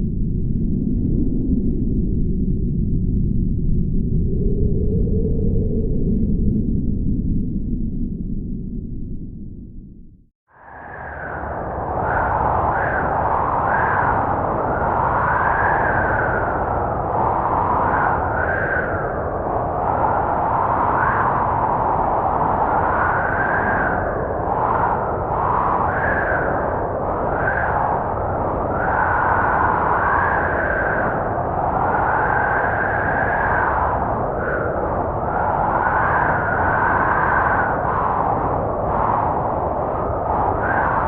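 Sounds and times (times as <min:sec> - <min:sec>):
howling snowstorm wind: 0:10.5 - 0:41.0.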